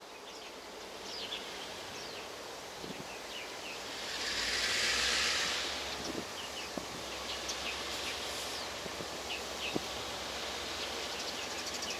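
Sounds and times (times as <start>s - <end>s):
outdoor background noise: 0.0s - 11.9s
small birds chirping: 0.1s - 10.0s, 10.7s - 11.9s
hissing swell: 3.5s - 8.7s.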